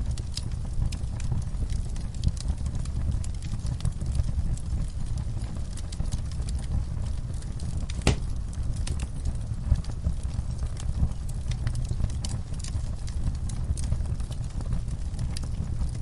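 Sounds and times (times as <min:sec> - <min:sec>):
fire crackling: 0:00.0 - 0:16.0
fire flames rumbling: 0:00.0 - 0:16.0
fire popping: 0:00.0 - 0:16.0.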